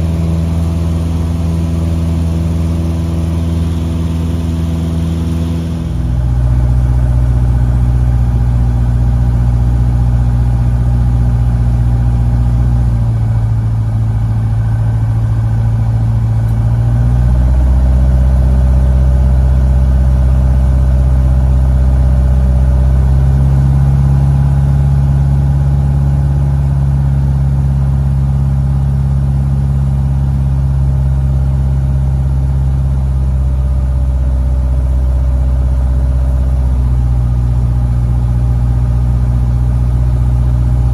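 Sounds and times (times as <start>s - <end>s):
plane engine and propeller droning: 0.0s - 22.0s.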